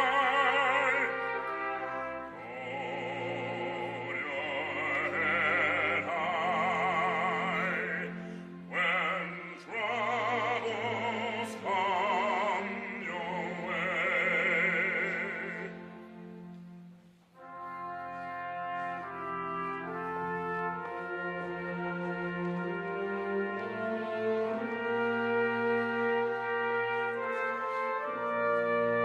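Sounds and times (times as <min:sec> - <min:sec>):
operatic solo singing: 0:00.0 - 0:16.3.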